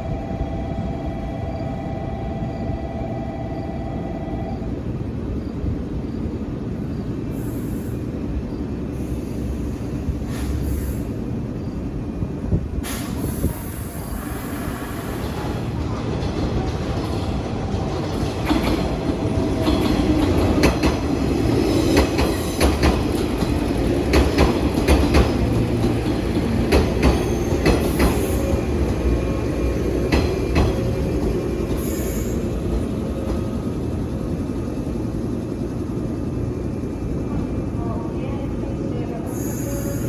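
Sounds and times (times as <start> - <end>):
low train rumble: 0.0 - 40.0
train wheels clacking over rail joints: 15.0 - 33.5.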